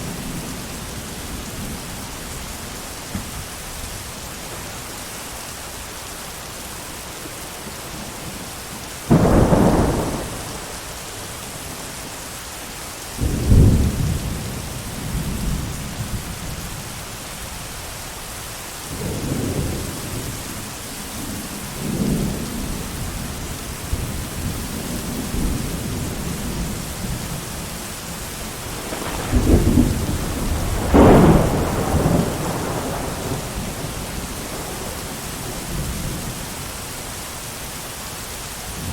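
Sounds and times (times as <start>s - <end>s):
heavy rain: 0.0s - 38.9s
thunder: 9.1s - 11.0s, 13.2s - 16.3s, 28.5s - 36.4s.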